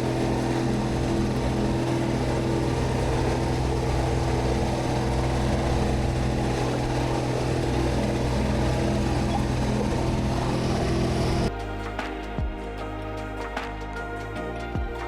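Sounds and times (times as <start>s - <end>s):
engine humming: 0.0s - 11.5s.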